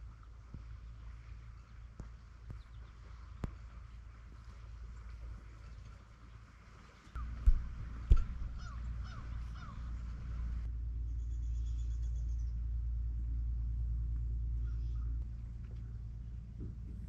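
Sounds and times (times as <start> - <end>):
low rumble: 0.0 - 17.0
short falling bird calls: 7.2 - 10.6.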